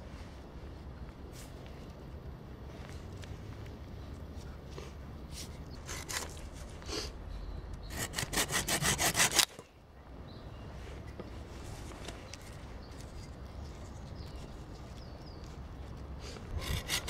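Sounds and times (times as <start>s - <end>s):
saw cutting wood: 7.9s - 9.6s, 16.6s - 17.0s.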